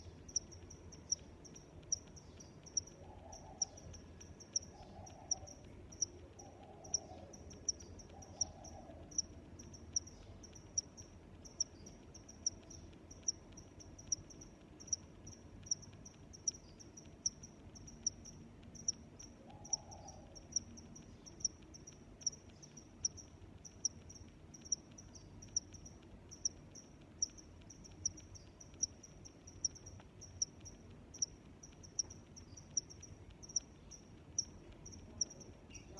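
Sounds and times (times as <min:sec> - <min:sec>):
cricket chirping: 0:00.0 - 0:35.9.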